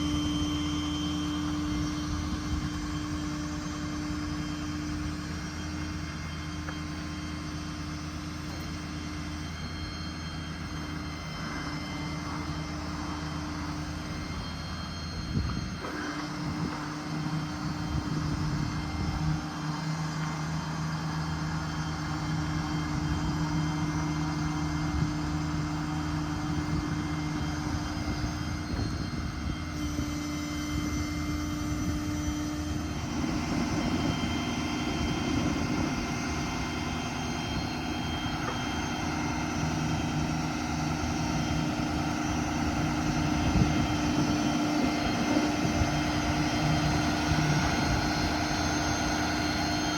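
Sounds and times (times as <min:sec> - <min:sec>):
diesel truck engine drone: 0:00.0 - 0:49.9
hydraulic crane hum: 0:00.0 - 0:49.9.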